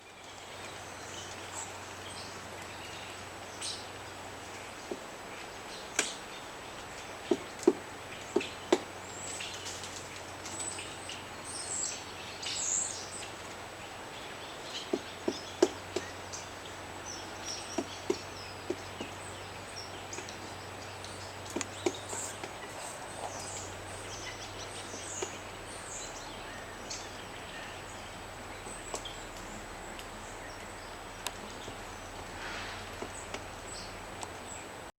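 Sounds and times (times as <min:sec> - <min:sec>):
steady outdoor hiss: 0:00.0 - 0:34.9
woodpecker pecking at wood: 0:07.2 - 0:08.9, 0:14.8 - 0:16.1, 0:17.7 - 0:19.2, 0:21.4 - 0:23.5.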